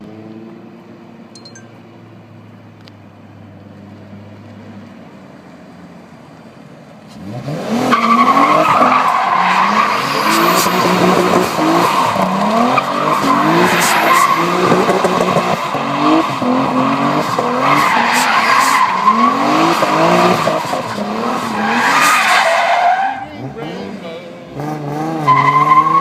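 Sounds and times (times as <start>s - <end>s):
car engine revving: 7.1s - 26.0s
tyres squealing: 7.9s - 24.0s.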